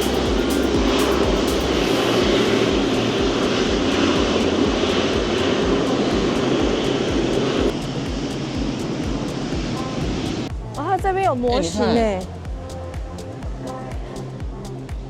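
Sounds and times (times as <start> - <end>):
jet engines rushing: 0.0 - 10.8.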